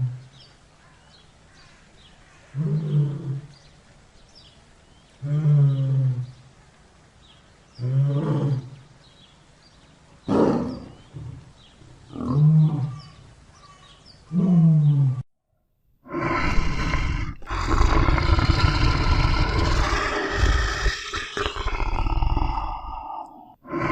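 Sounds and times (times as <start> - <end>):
lion roaring: 2.5 - 3.5, 5.2 - 6.4, 7.8 - 8.8, 12.1 - 13.2, 14.3 - 15.2, 16.1 - 23.9.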